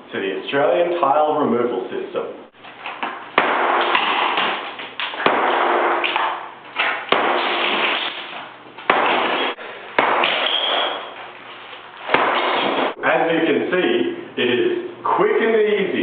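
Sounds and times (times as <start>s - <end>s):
hammer hitting tiles: 3.4s - 8.0s, 8.9s - 11.0s.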